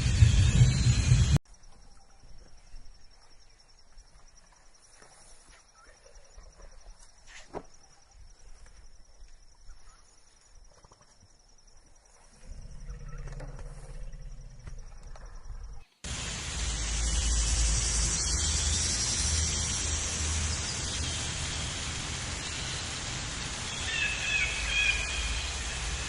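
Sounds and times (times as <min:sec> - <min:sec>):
bird chirping: 0:22.4 - 0:26.0.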